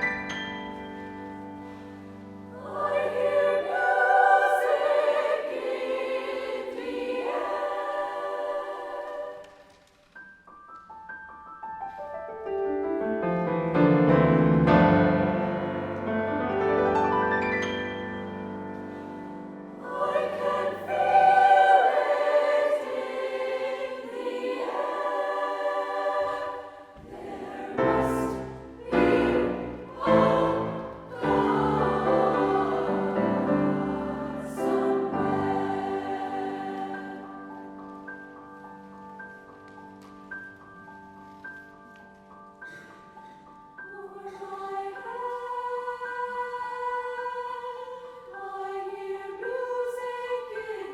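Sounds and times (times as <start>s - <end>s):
choir singing: 0.0s - 9.8s, 14.8s - 38.3s, 43.8s - 50.9s.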